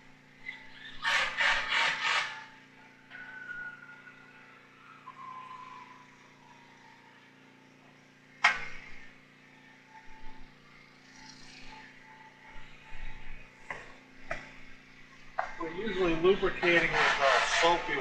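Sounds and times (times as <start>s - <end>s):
low engine-like hum: 0.0s - 18.0s.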